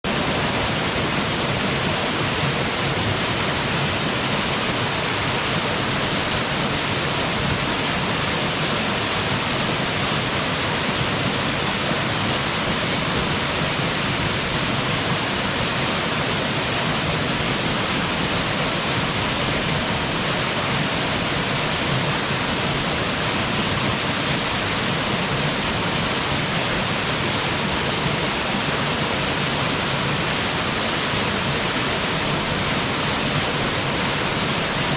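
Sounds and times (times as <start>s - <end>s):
waterfall onto rocks: 0.0s - 34.9s.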